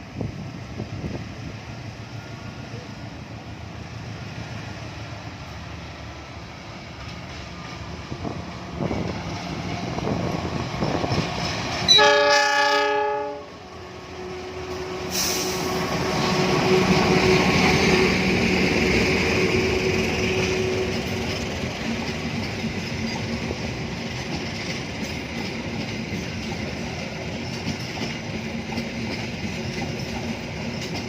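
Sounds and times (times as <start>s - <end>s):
train wheels on rails: 0.0s - 31.0s
train horn: 11.9s - 21.3s.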